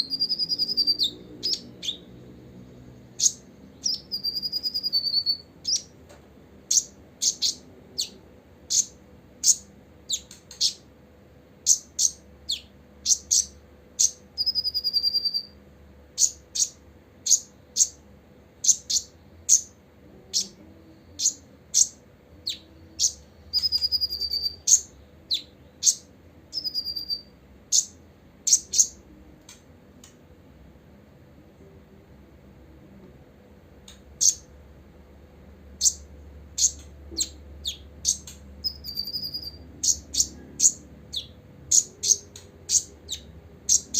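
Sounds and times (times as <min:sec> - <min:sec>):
bird high sharp chirps: 0:00.0 - 0:02.1, 0:03.1 - 0:05.9, 0:06.7 - 0:10.8, 0:11.6 - 0:15.6, 0:16.2 - 0:18.0, 0:21.2 - 0:29.0, 0:34.2 - 0:34.5, 0:35.8 - 0:43.9.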